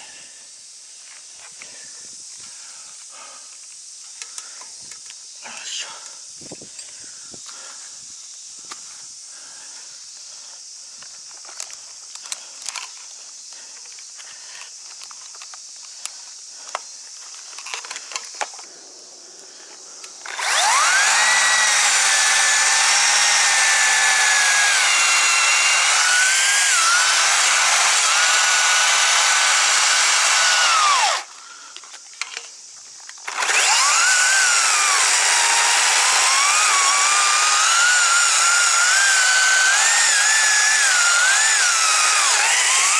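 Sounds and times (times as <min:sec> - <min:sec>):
light clicks and rustling: 0:13.8 - 0:18.7
chainsaw cutting wood: 0:19.8 - 0:31.3, 0:33.2 - 0:42.9.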